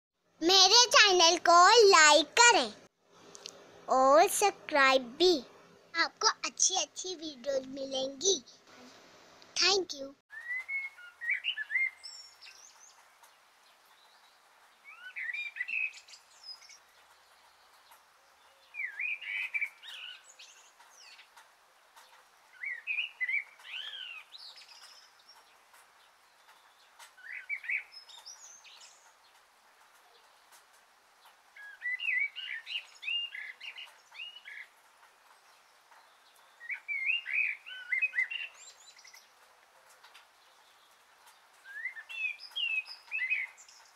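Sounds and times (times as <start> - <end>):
faint hiss: 8.4 - 9.7
small bird chirping: 9.6 - 43.9.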